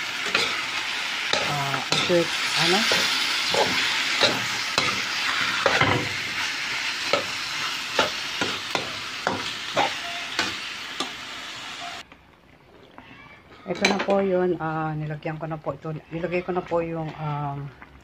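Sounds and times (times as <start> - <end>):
chicken sizzling in hot oil: 0.0 - 12.0
spoon knocking and scraping pan: 1.3 - 11.2.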